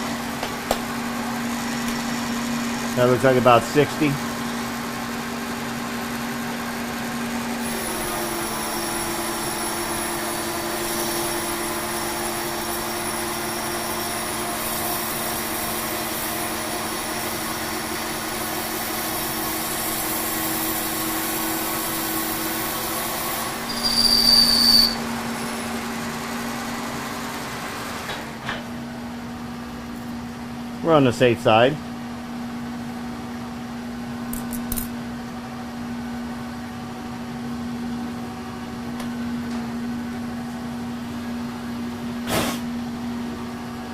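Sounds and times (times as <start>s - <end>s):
high-pitched squeal: 23.6s - 25.1s.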